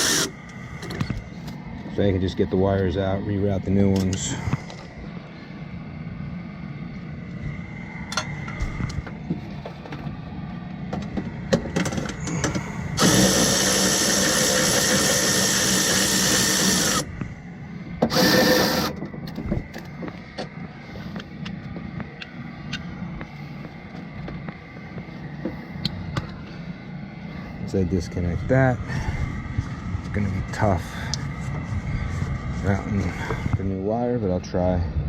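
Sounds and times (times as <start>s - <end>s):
power tool running: 0.0s - 0.8s, 11.9s - 17.2s, 18.0s - 19.1s.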